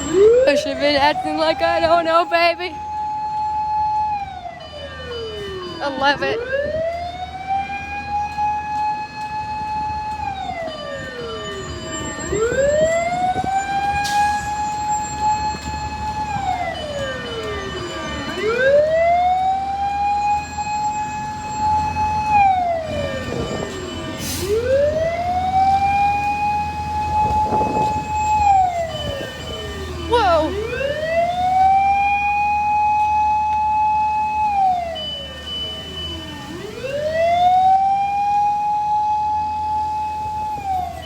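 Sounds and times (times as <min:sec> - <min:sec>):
fire truck siren wailing: 0:00.0 - 0:41.0.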